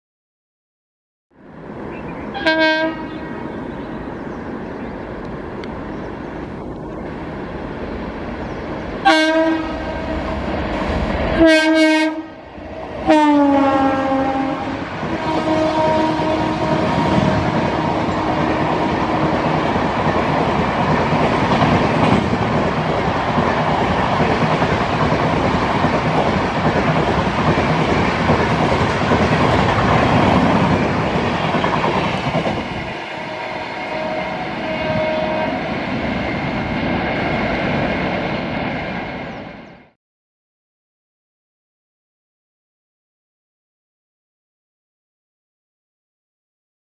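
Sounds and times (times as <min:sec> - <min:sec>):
train wheels rushing on rails: 0:01.5 - 0:40.0
train horn: 0:02.3 - 0:03.4, 0:09.0 - 0:10.5, 0:11.3 - 0:19.4, 0:32.9 - 0:35.9.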